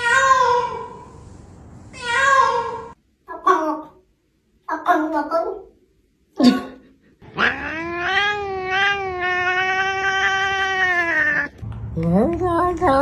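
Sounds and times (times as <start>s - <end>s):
cat yowling: 7.4s - 11.6s
voice with stepping pitch: 11.5s - 13.0s.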